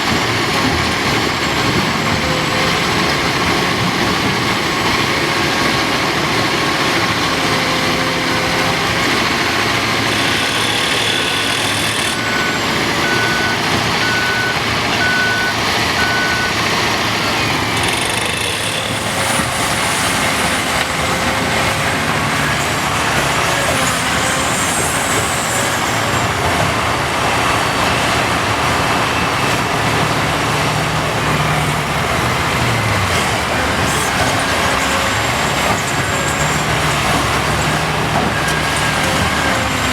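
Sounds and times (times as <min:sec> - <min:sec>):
large diesel engines running: 0:00.0 - 0:39.9
reversing alarm beeps: 0:10.0 - 0:19.5.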